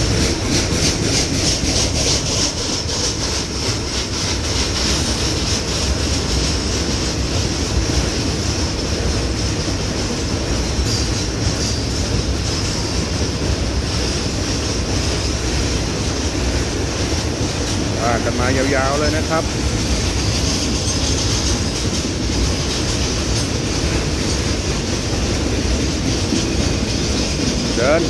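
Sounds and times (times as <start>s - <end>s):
train wheels clacking on rails: 0.0s - 28.0s
steady high-pitched squeal: 17.6s - 24.7s.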